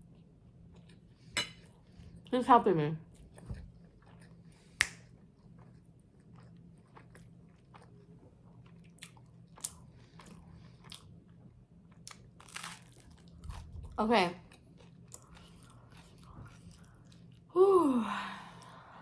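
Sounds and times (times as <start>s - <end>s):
chewing and crunching food: 3.0s - 17.5s.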